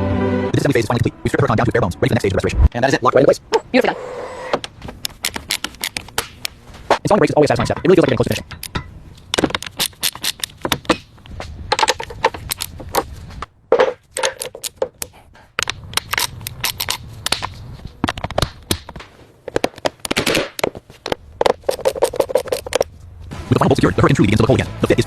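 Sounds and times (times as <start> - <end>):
metallic clicks and knocks: 7.3 - 11.1, 11.7 - 13.1, 13.7 - 22.9.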